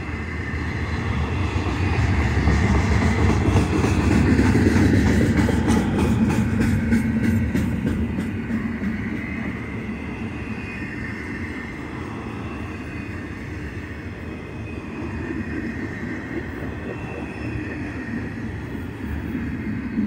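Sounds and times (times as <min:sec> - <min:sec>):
train cars rumbling on rails: 0:00.0 - 0:20.0.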